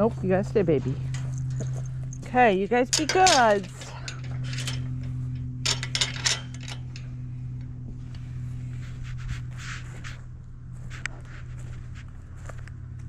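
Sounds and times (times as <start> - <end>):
low mechanical hum: 0.0 - 13.0
sharp clicks and knocks: 2.7 - 8.2.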